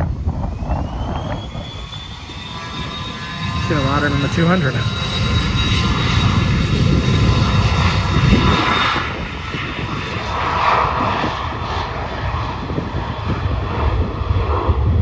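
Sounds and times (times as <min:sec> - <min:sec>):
faint steady whine: 0:00.0 - 0:05.2
jet engines roaring: 0:00.0 - 0:15.0.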